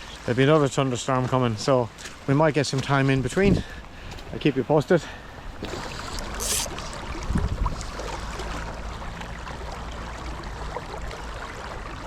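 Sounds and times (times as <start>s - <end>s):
brief rustle: 5.6s - 7.0s.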